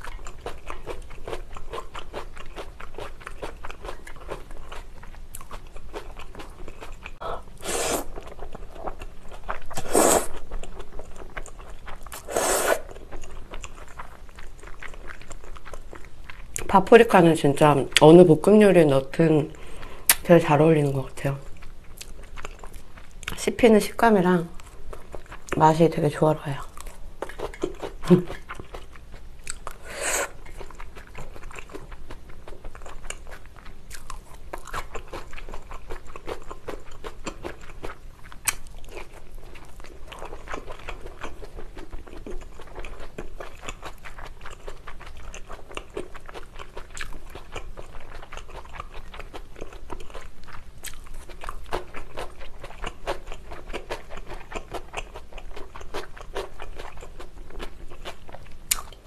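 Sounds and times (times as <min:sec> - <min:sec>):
wet chewing crunches: 0:08.0 - 0:16.8, 0:26.7 - 0:59.0.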